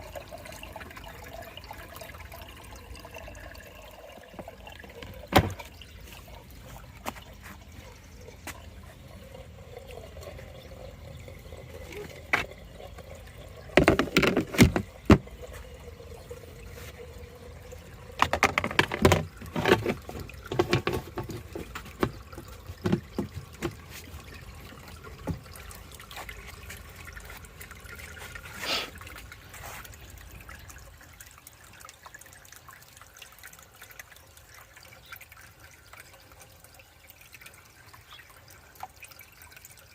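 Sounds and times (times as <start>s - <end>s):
water trickling in aquarium: 0.0s - 39.9s
knocks and clatters: 13.8s - 15.3s, 18.2s - 24.0s.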